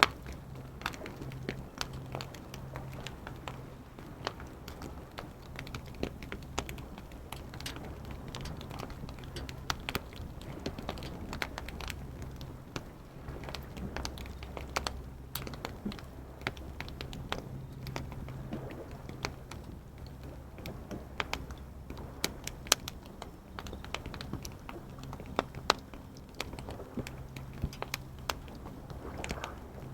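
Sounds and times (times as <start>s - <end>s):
low steady rumble: 0.0s - 29.9s
wood fire crackling: 0.0s - 29.9s.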